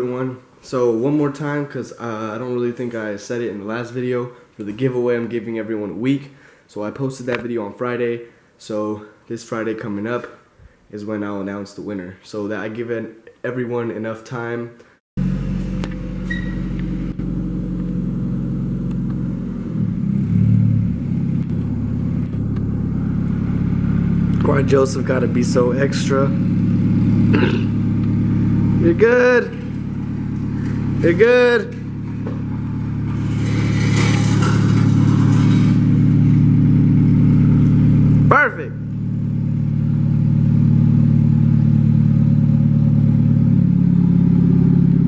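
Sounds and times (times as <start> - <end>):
car engine idling: 15.2 - 45.0.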